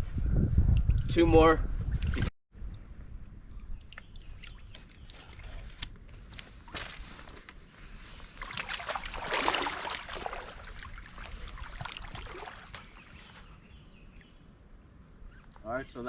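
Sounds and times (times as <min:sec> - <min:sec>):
water splashing: 0:08.3 - 0:13.3
stream flowing: 0:08.4 - 0:13.2.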